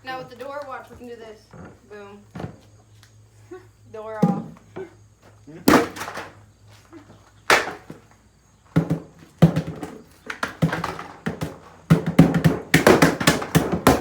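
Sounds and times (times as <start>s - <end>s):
hard blows striking a refrigerator: 5.6s - 6.3s, 8.7s - 14.0s.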